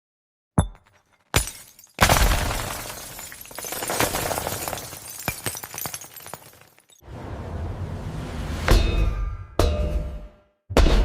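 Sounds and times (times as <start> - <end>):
glass shards tinkling: 2.8 - 7.0.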